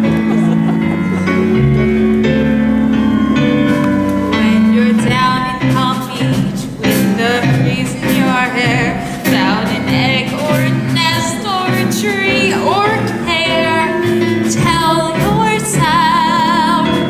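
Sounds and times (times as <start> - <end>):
musical theatre accompaniment chords: 0.0 - 17.0
woman singing with vibrato: 4.3 - 17.0.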